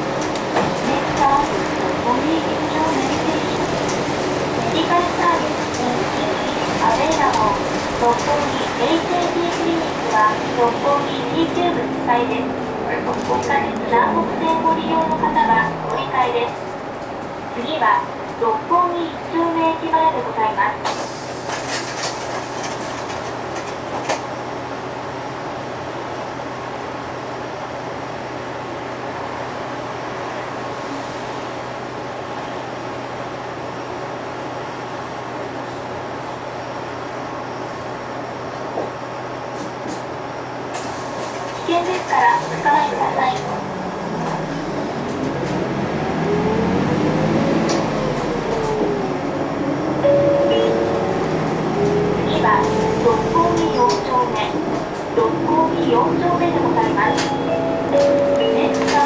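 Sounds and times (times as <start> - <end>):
road noise: 0.0 - 18.4, 40.7 - 59.0
bus drive train drone: 0.0 - 59.0.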